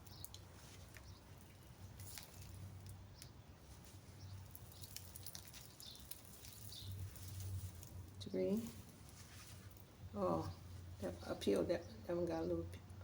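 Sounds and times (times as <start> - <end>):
soft clicks of potatoes: 0.0 - 9.9
hands rustling through soil: 0.0 - 11.7.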